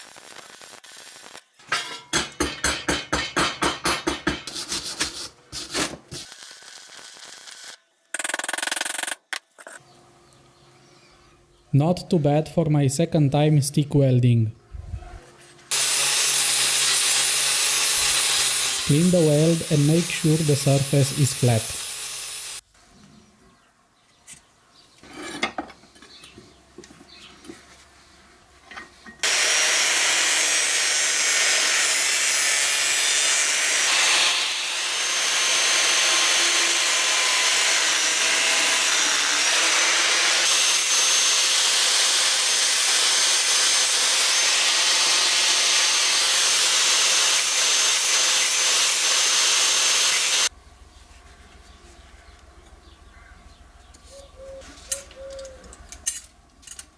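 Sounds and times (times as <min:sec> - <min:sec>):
angle grinder grinding steel: 0:15.7 - 0:22.6, 0:29.2 - 0:50.5.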